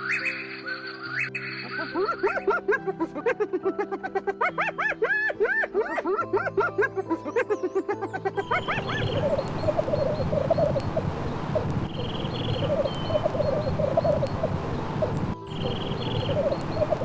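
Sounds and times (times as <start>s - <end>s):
turkeys gobbling: 0.0s - 11.0s
high chirping trill: 4.4s - 11.1s, 11.9s - 17.0s.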